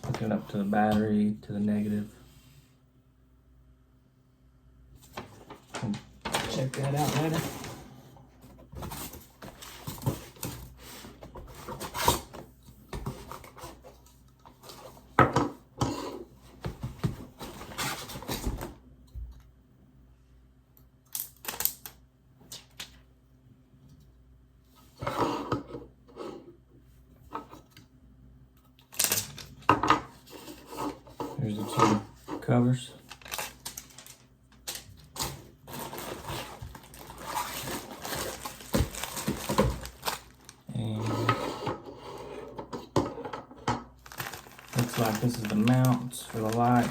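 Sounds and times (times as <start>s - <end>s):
packaging rustling and clicking: 28.8s - 29.7s, 33.0s - 40.7s, 44.0s - 46.9s.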